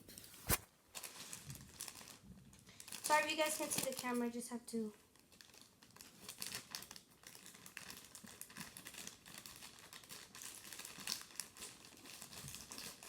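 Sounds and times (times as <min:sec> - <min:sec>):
packaging crinkling: 0:00.0 - 0:04.2, 0:05.2 - 0:13.0
packaging tearing: 0:05.4 - 0:13.0.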